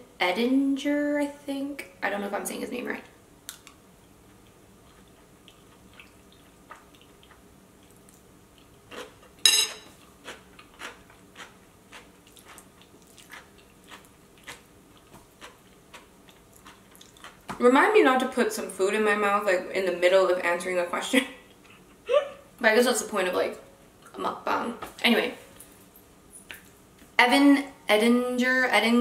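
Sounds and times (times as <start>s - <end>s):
person chewing with wet clicks: 3.5s - 17.6s, 26.4s - 26.8s
metal spoon clinking in ceramic bowl: 9.5s - 9.9s.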